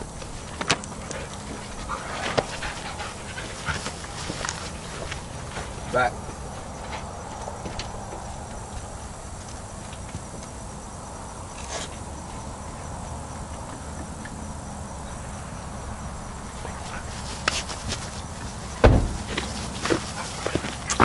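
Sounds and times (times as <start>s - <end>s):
faint insect chirping: 0.0s - 21.0s
loud thump: 18.8s - 19.5s.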